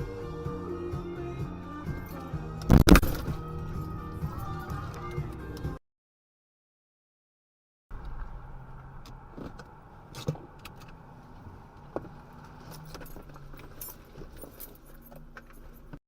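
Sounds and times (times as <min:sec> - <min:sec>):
car engine and road hum: 0:00.0 - 0:05.8, 0:07.9 - 0:16.0
rattling jangling clicks: 0:12.6 - 0:16.0.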